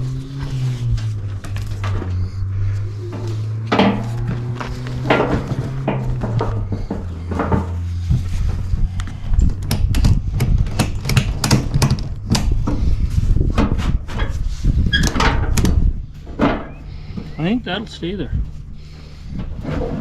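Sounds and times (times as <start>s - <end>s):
steady low hum: 0.0s - 20.0s
sharp clicks and knocks: 3.2s - 14.3s, 14.9s - 16.7s.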